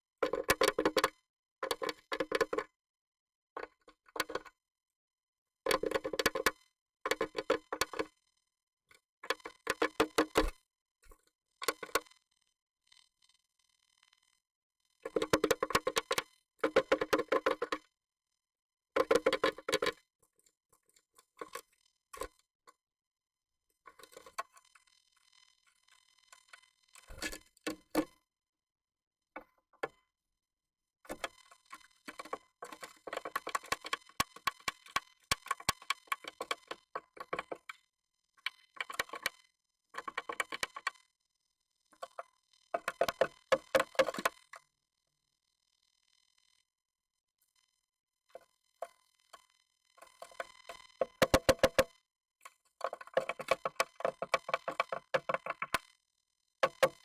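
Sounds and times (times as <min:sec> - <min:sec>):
bird tapping and scratching in nest box: 0:00.2 - 0:02.7, 0:03.6 - 0:04.5, 0:05.7 - 0:08.1, 0:09.2 - 0:10.6, 0:15.1 - 0:17.8, 0:19.0 - 0:20.0, 0:27.0 - 0:28.1, 0:31.1 - 0:37.8, 0:38.4 - 0:39.4, 0:40.0 - 0:41.0, 0:42.0 - 0:44.4, 0:50.0 - 0:51.9, 0:52.7 - 0:55.8, 0:56.6 - 0:57.0.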